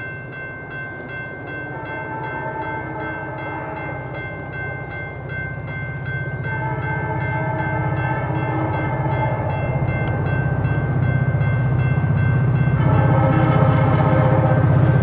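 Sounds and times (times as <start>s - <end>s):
locomotive air horn: 1.7s - 4.5s, 6.4s - 9.9s, 12.7s - 15.0s
diesel locomotive engine rumble: 2.9s - 15.0s.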